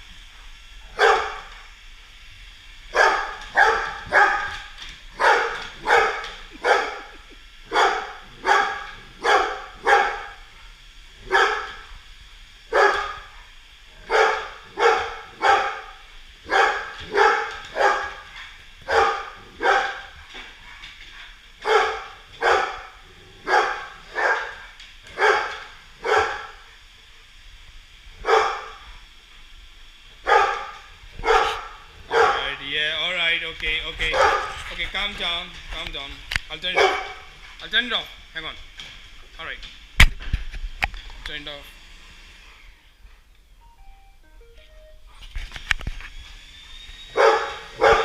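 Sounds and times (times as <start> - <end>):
dog barking: 0.9 - 1.5, 2.9 - 10.4, 11.2 - 11.8, 12.7 - 13.3, 14.0 - 18.2, 18.8 - 20.1, 21.6 - 26.6, 28.2 - 28.8, 30.2 - 32.6, 34.0 - 34.6, 36.6 - 37.4, 47.2 - 48.0.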